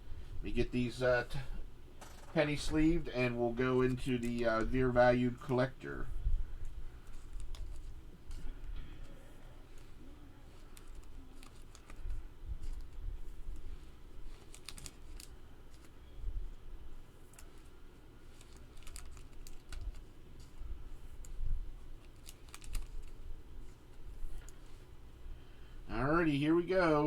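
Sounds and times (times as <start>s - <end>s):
cards handled in plastic sleeves: 2.3s - 5.7s, 6.9s - 24.9s.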